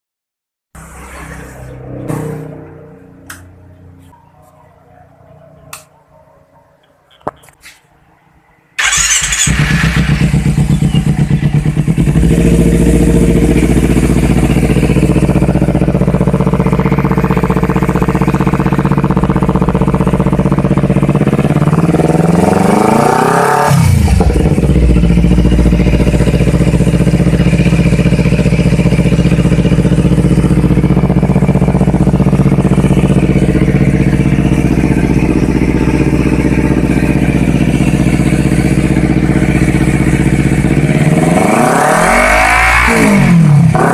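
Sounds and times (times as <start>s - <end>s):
motorcycle engine revving: 0.8s - 4.1s, 8.8s - 43.9s
motorcycle engine starting and idling: 8.8s - 43.9s.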